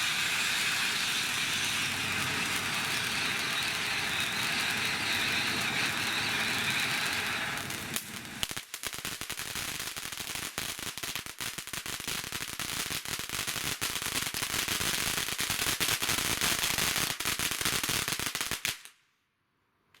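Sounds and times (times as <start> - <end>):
firework fountain hissing: 0.0 - 8.9
firework crackling and popping: 0.0 - 19.1.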